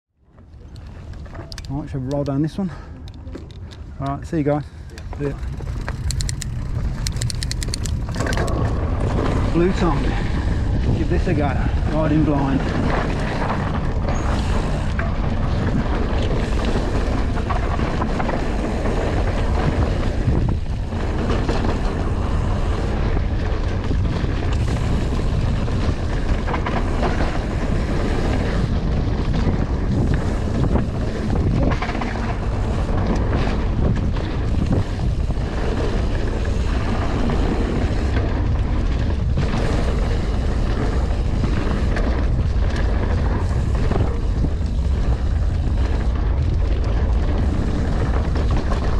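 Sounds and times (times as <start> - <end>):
bike tyres rumbling on dirt: 0.2 - 48.9
bike knocking and rattling: 0.3 - 48.9
wind buffeting microphone: 0.4 - 48.9.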